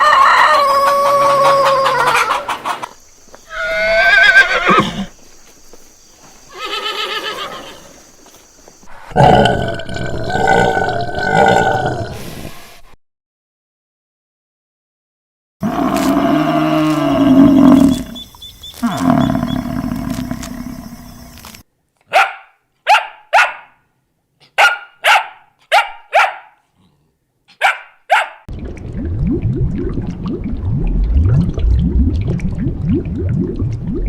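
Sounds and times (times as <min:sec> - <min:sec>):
low rough growl: 0:09.0 - 0:12.3, 0:15.6 - 0:18.0
long low animal call: 0:15.6 - 0:21.5
dog barking: 0:22.0 - 0:23.8, 0:24.4 - 0:26.7, 0:27.5 - 0:28.5.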